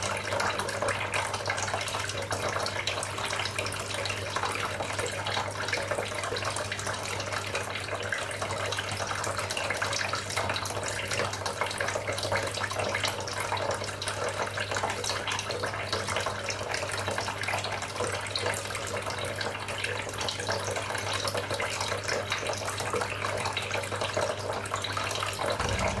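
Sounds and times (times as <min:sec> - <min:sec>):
fountain water trickling: 0:00.0 - 0:26.0
low steady hum: 0:25.6 - 0:26.0.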